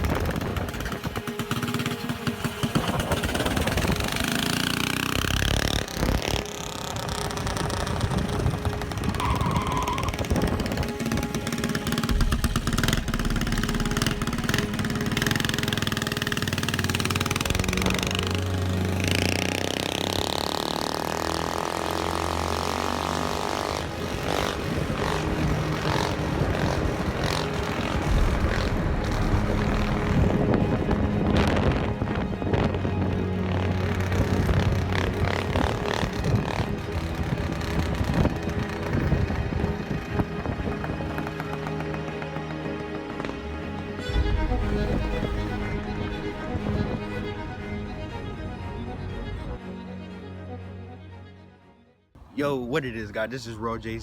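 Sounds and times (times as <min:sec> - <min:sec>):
mini bike engine running: 0:00.0 - 0:30.1, 0:33.6 - 0:43.3.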